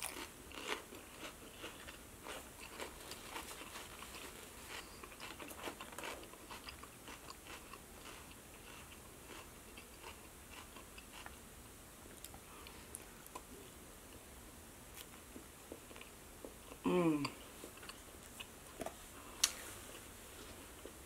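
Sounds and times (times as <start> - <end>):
chewing crisp lettuce: 0.0 - 11.4.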